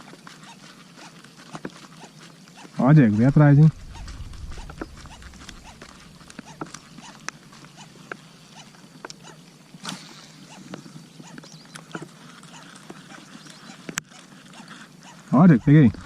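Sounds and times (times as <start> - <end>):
faint hiss of rain: 2.8 - 7.6
raindrops ticking on kayak: 2.8 - 8.2.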